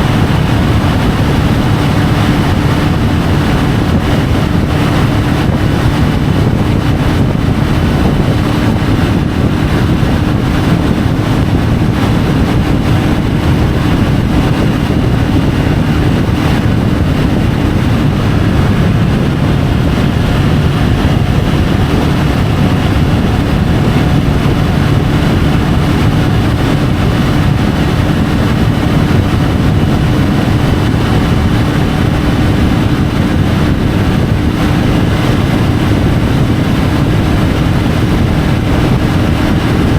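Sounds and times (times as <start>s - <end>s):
motorcycle engine cruising: 0.0s - 39.9s
wind rush on microphone: 0.0s - 39.9s.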